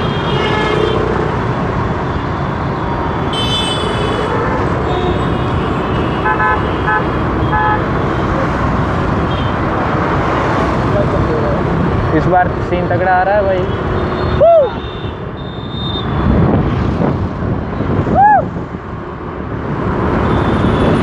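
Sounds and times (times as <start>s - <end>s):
road traffic rumble: 0.0s - 21.0s
car horns honking: 3.2s - 8.0s.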